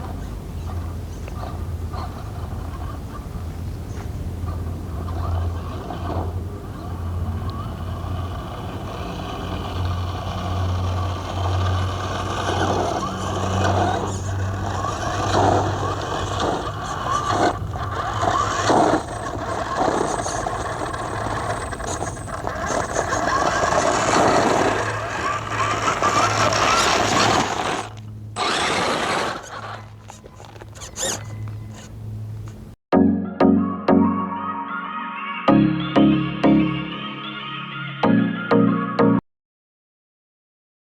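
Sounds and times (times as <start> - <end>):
toy car motor whining: 4.7 - 32.6
toy truck knocking over ground: 9.6 - 31.9.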